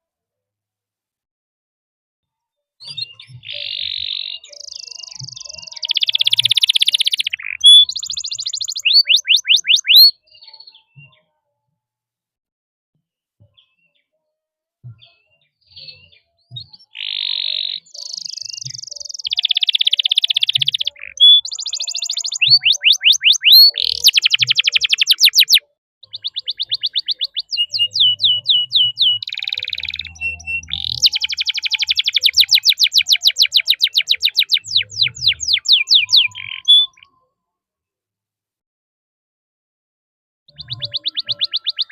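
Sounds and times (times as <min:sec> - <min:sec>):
canary singing trills: 0:02.8 - 0:11.0, 0:15.7 - 0:37.2, 0:40.5 - 0:41.9.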